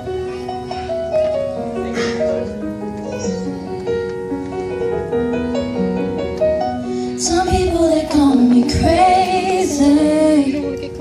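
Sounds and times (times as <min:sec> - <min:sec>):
held keyboard chords: 0:00.0 - 0:11.0
girl singing a slow ballad: 0:07.0 - 0:11.0.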